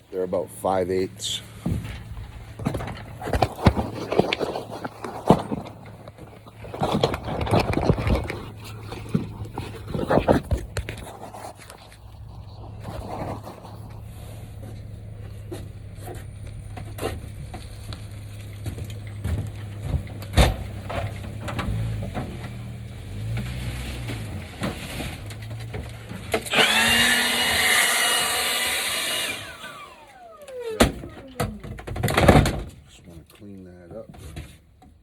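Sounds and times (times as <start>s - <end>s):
wood pieces knocking: 1.6s - 11.7s
power saw cutting wood: 26.3s - 30.9s.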